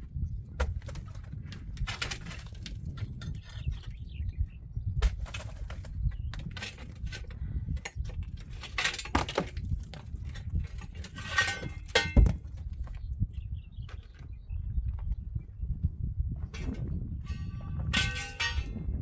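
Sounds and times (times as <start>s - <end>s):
clinks knocks and scrapes: 0.5s - 4.4s, 5.0s - 13.1s, 16.4s - 19.0s
steady low rumble: 9.5s - 19.0s.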